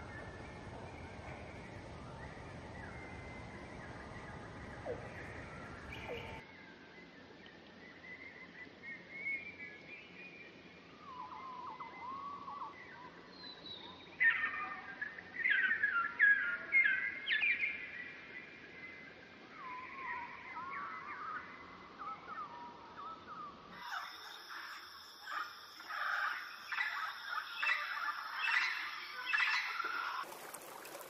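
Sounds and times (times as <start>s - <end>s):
birds chirping and calling: 23.8s - 30.2s.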